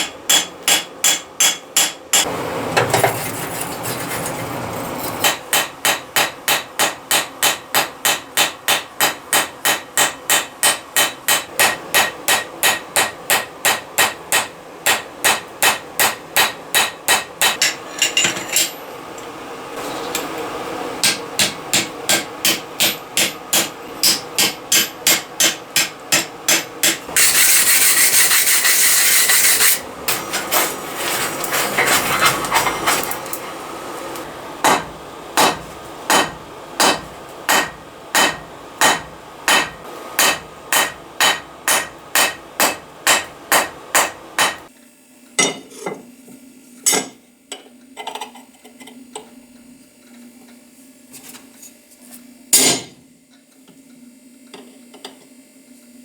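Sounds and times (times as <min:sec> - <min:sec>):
hammer striking hot steel: 0:00.0 - 0:03.0, 0:05.1 - 0:18.8, 0:21.0 - 0:30.8, 0:34.6 - 0:44.7, 0:52.5 - 0:53.0
harsh scraping: 0:02.8 - 0:05.3, 0:27.2 - 0:33.6.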